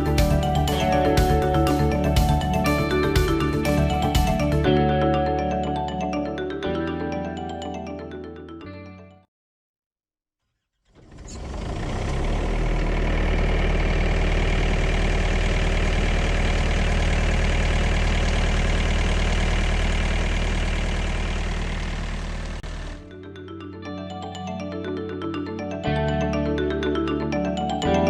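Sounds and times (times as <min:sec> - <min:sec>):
refrigeration unit diesel engine running: 0:00.0 - 0:04.7, 0:11.0 - 0:23.1.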